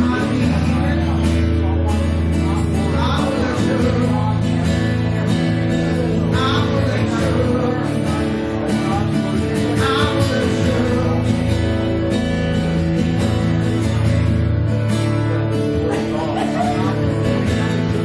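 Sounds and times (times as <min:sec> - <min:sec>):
person singing: 0:00.0 - 0:12.8
music with guitar and beat: 0:00.0 - 0:18.0.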